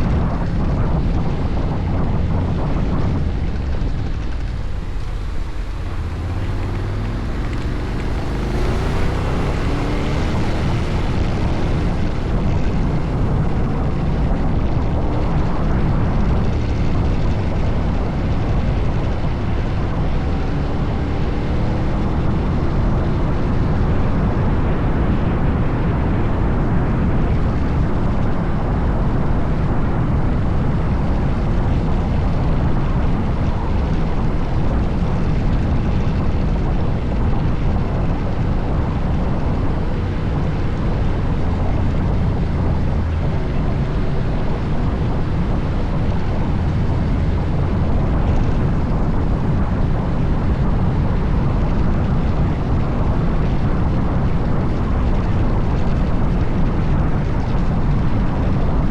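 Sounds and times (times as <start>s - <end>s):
wind rushing over microphone: 0.0s - 58.9s
scooter engine running: 1.9s - 13.8s.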